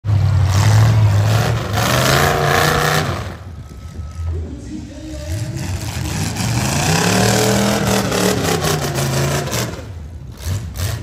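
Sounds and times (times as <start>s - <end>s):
car engine revving hard: 0.4s - 3.4s, 5.9s - 11.0s.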